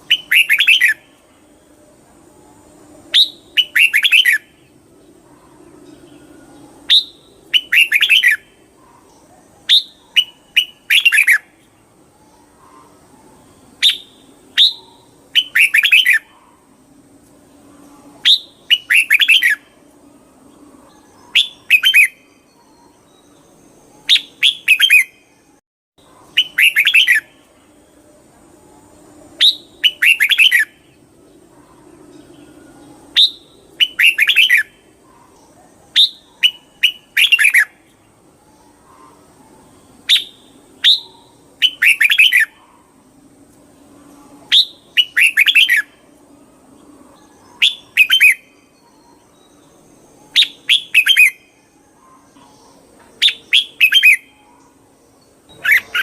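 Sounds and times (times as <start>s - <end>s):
bird singing short phrases: 0.1s - 1.2s, 3.1s - 4.4s, 6.9s - 11.5s, 13.8s - 16.6s, 26.4s - 27.4s, 40.1s - 42.9s, 44.4s - 46.0s, 50.3s - 54.7s, 55.5s - 56.0s.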